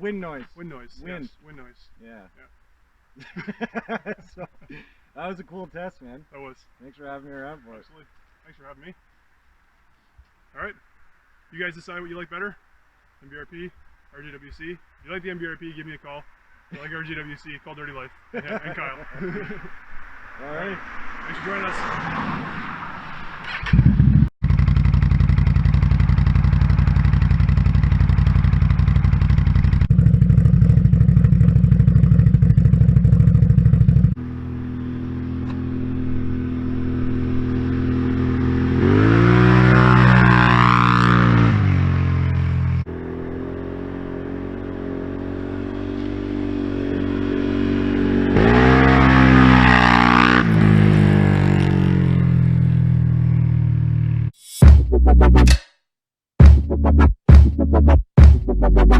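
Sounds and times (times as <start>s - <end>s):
atv engine revving: 23.6s - 54.4s.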